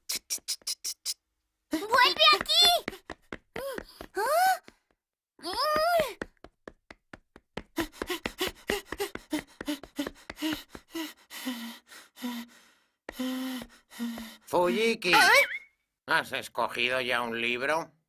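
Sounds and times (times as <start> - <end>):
cartoon running footsteps: 1.7 - 11.7, 13.1 - 14.5
cartoon cry: 15.1 - 15.6.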